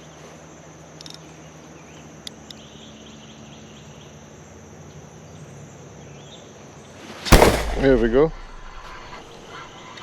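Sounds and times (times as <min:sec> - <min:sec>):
sharp clicks: 0:07.3 - 0:09.0.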